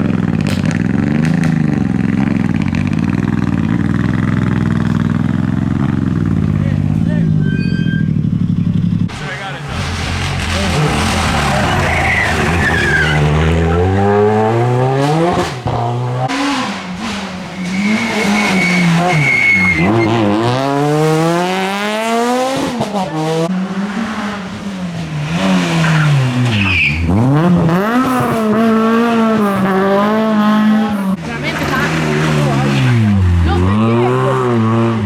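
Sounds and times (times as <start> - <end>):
rally car engine revving: 0.0 - 35.0
tyre squeal: 7.2 - 8.3, 9.2 - 14.1, 17.5 - 20.3, 25.6 - 27.2.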